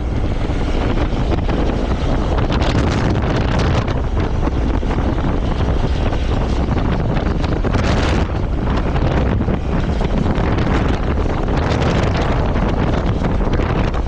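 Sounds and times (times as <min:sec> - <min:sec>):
motorcycle running: 0:00.0 - 0:14.0
wind buffeting microphone: 0:00.0 - 0:14.0.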